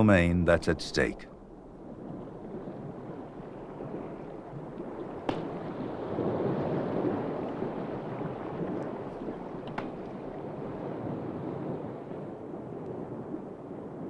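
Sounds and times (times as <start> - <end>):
low rushing water: 0.0 - 14.0.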